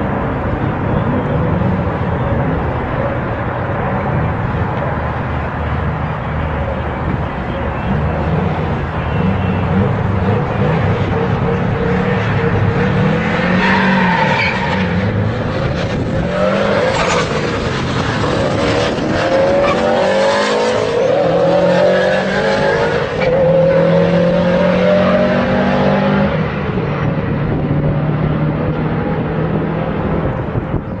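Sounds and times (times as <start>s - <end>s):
car engines accelerating hard: 0.0s - 31.0s.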